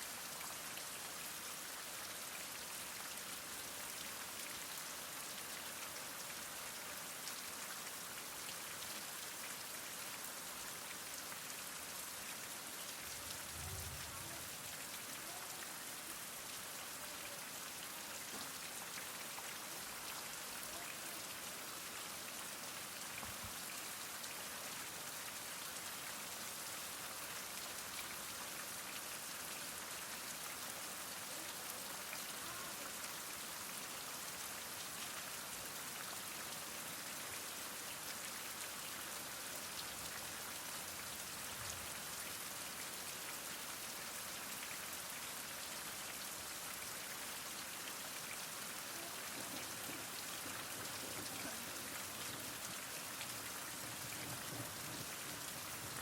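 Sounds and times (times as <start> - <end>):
heavy rain falling: 12.4 - 23.8, 46.1 - 56.0.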